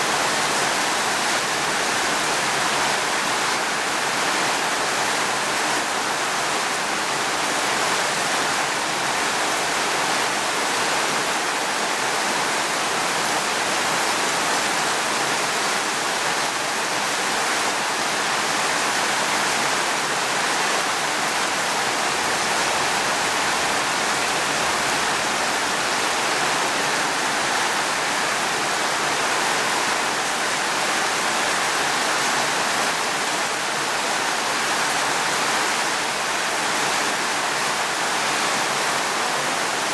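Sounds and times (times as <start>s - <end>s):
heavy rain hiss: 18.2s - 33.8s.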